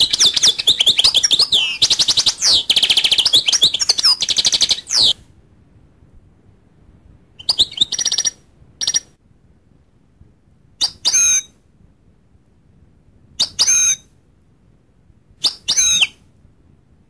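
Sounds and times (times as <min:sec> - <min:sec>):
goldfinch calling: 0:00.0 - 0:05.2, 0:07.4 - 0:09.0.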